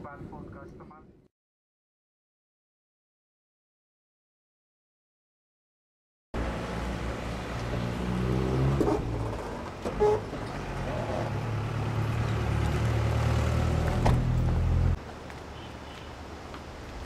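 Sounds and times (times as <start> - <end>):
vehicle engine humming: 6.4 - 17.0.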